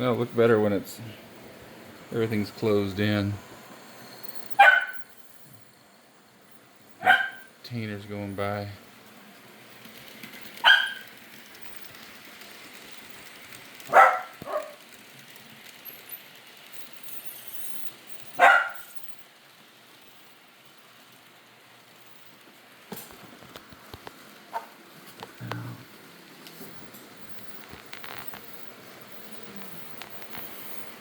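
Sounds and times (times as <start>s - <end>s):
model trains whirring: 0.0s - 31.0s
dog barking: 4.6s - 5.0s, 7.0s - 7.5s, 10.6s - 11.1s, 13.9s - 14.8s, 18.4s - 18.9s, 24.5s - 24.7s.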